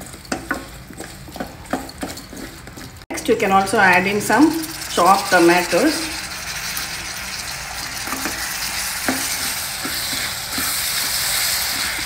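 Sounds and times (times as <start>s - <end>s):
wooden spatula knocking pan: 0.0s - 2.8s, 7.8s - 12.0s
vegetables sizzling in hot oil: 3.2s - 12.0s.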